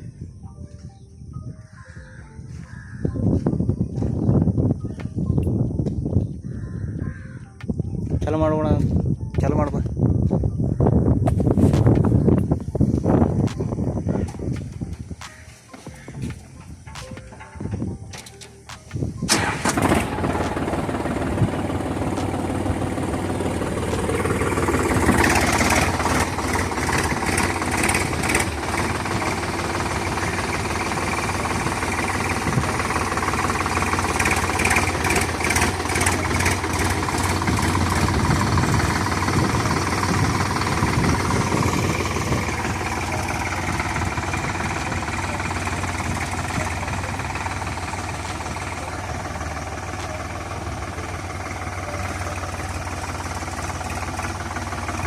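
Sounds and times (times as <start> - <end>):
diesel tractor engine clattering: 11.0 - 55.0.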